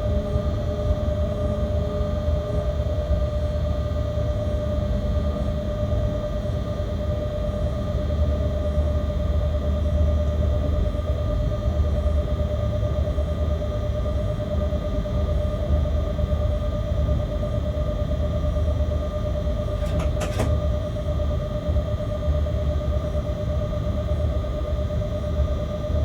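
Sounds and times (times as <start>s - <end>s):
locomotive cab rumble: 19.0s - 21.7s.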